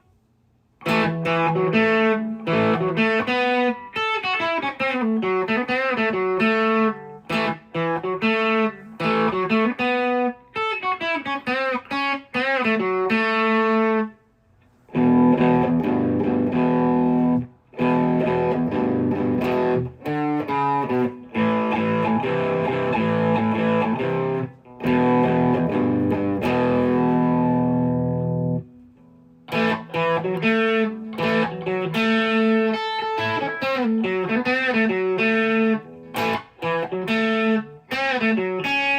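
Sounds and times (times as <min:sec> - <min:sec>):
electric guitar single-note lines: 0:00.8 - 0:14.2, 0:14.9 - 0:38.9
electric guitar strummed chords: 0:00.8 - 0:14.2, 0:14.9 - 0:38.9.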